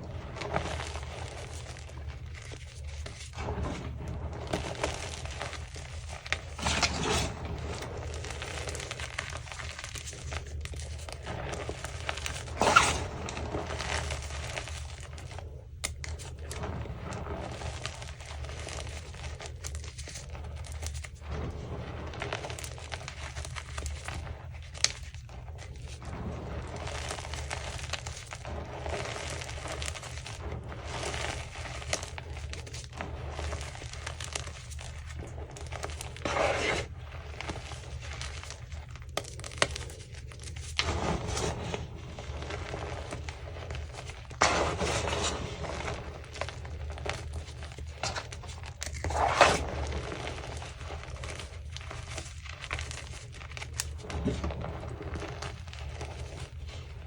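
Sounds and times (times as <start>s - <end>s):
chalk being crushed: 0.4s - 19.2s, 25.8s - 56.8s.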